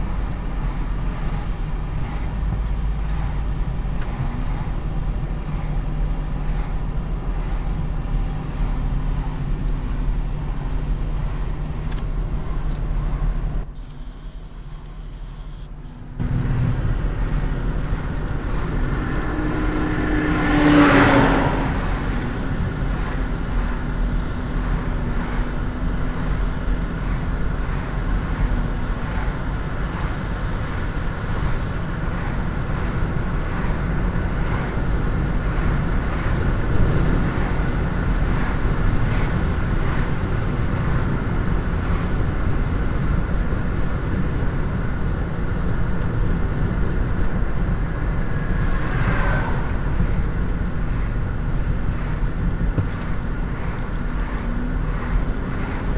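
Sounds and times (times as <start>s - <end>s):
pitched hum: 0.0s - 29.2s
road noise: 0.0s - 55.9s
vehicle engine rumble: 0.0s - 55.9s.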